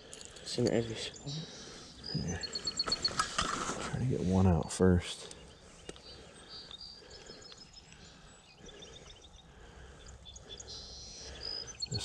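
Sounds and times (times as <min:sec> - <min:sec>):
birds chirping and trilling: 0:00.0 - 0:12.0.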